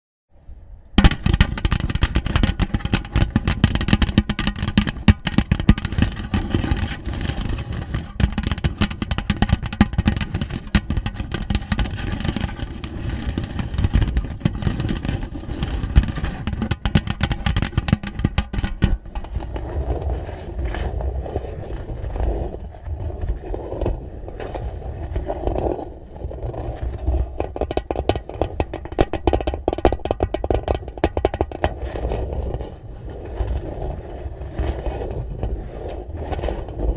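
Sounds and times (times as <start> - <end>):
rapid pattering on tin box: 1.0 - 20.0, 26.5 - 32.9.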